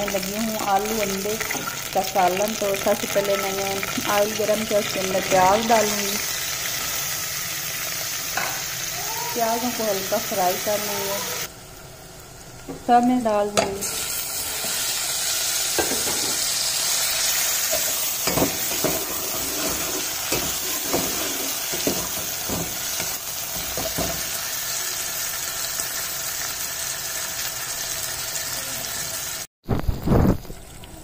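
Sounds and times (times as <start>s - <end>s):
vegetables sizzling in hot oil: 0.0s - 31.0s
steel ladle scraping a pot: 17.7s - 22.2s.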